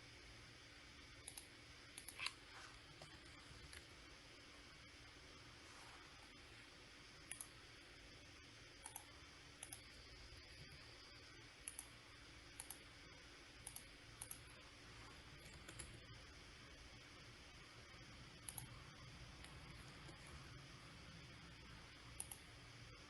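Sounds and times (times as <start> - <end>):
low steady hiss: 0.0 - 23.0
computer mouse clicks: 1.2 - 3.9, 7.2 - 7.6, 8.8 - 10.0, 11.6 - 12.9, 13.6 - 14.5, 15.3 - 16.1, 18.4 - 20.4, 22.1 - 22.5.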